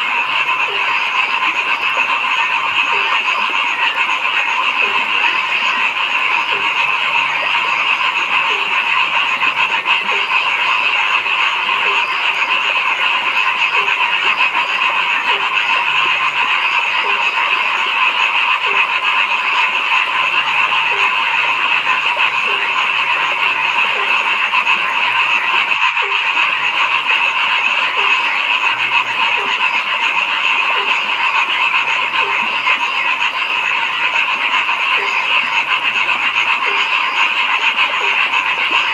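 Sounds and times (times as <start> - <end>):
chorus of frogs calling: 0.0 - 38.9
low frog croak: 0.0 - 38.9.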